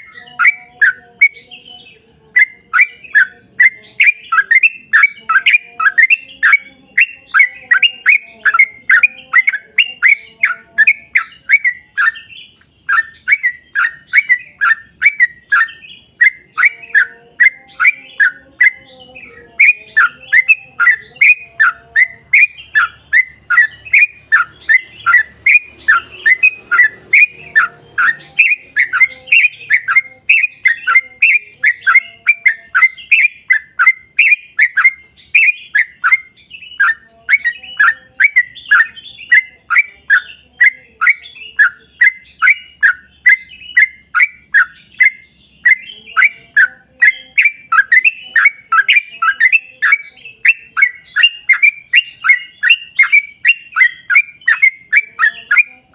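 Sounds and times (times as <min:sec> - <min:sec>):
bird chirping: 0:00.0 - 0:55.9.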